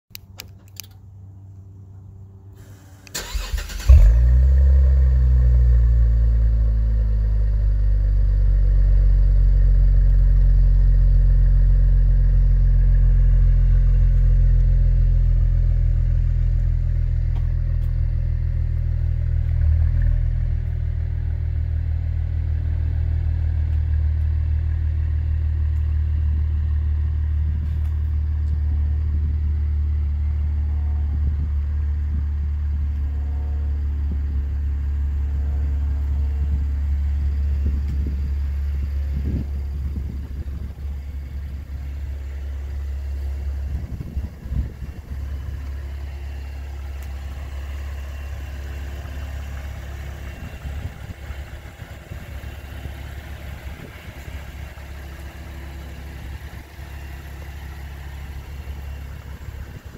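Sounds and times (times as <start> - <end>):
car engine idling: 0.8 - 59.9
engine starter cranking: 3.0 - 4.3.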